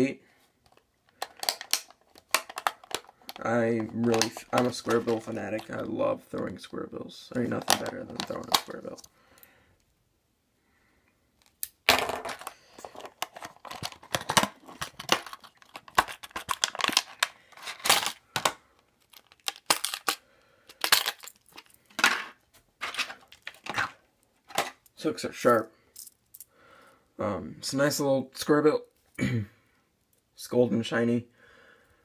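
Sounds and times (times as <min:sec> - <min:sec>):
packaging tearing and crinkling: 0:12.4 - 0:18.2, 0:19.0 - 0:21.7.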